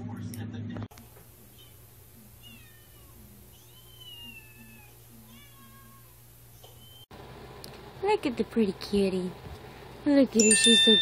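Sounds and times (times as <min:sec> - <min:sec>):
cat mewing: 0:02.4 - 0:06.2.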